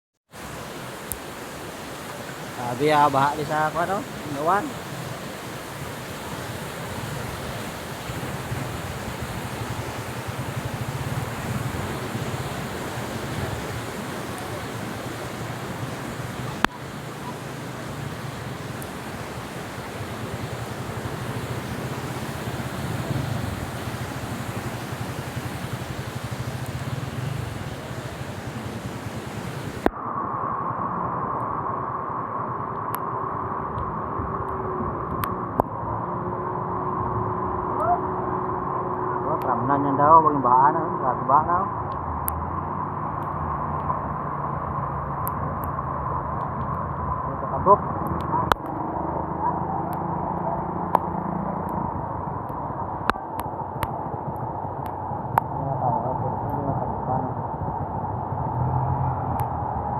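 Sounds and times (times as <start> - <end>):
floodwater rushing: 0.3 - 29.9, 33.8 - 59.9.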